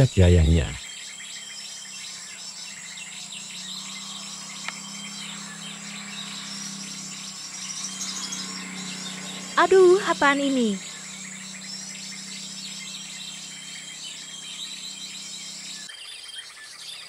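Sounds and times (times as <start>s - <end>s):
low steady hum: 0.0s - 0.8s
high-pitched insect drone: 0.0s - 15.9s
small birds chirping: 0.0s - 17.0s.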